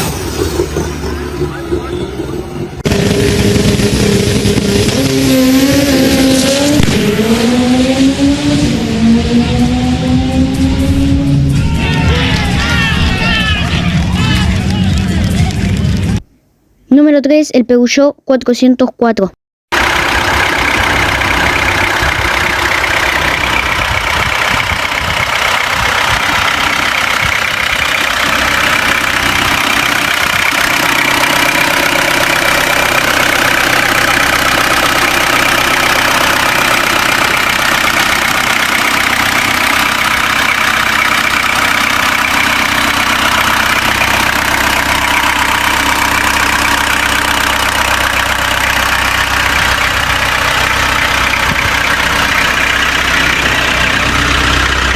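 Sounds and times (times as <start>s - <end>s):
car engine idling: 0.0s - 16.3s, 19.7s - 54.9s.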